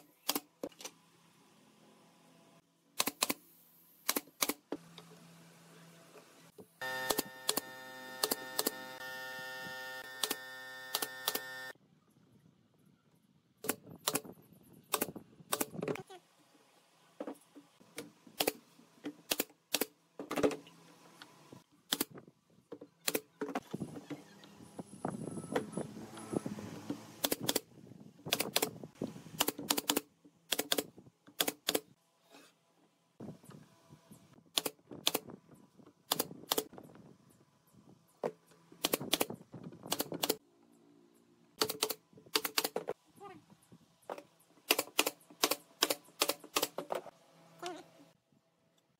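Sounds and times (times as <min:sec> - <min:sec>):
pneumatic nailer firing: 0:06.8 - 0:11.7, 0:44.6 - 0:47.0.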